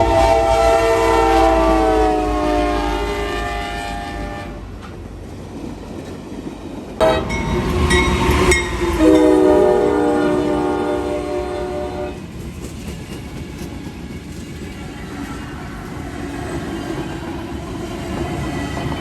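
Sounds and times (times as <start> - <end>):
locomotive air horn: 0.0 - 4.6, 7.0 - 7.3, 9.0 - 12.2
train rumble: 0.0 - 19.0.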